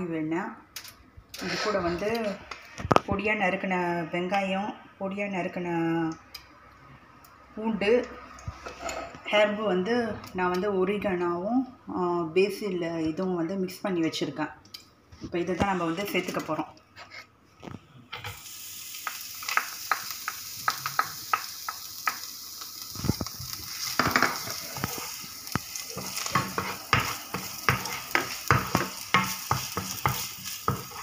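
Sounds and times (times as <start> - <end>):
onion sizzling in hot oil: 18.2 - 31.0
spatula scraping pan: 23.1 - 31.0.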